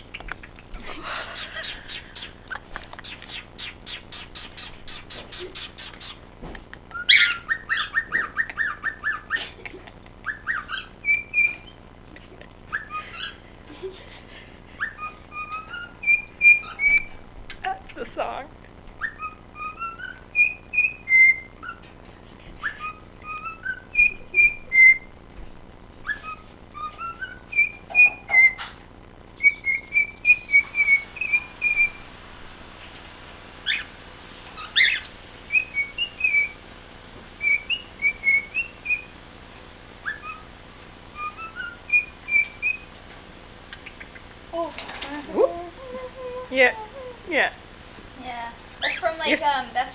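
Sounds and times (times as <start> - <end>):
sharp bird chirps: 3.0 - 6.2, 10.2 - 11.8, 14.8 - 17.2, 22.6 - 25.1, 29.4 - 32.0, 34.6 - 36.6, 37.4 - 39.2, 43.7 - 44.3
cockatiel whistling tune: 6.9 - 9.4, 10.2 - 11.8, 12.7 - 13.4, 14.8 - 17.2, 19.0 - 21.9, 22.6 - 25.1, 26.0 - 28.8, 29.4 - 32.0, 34.6 - 36.6, 37.4 - 39.1, 40.0 - 40.5, 41.1 - 42.9.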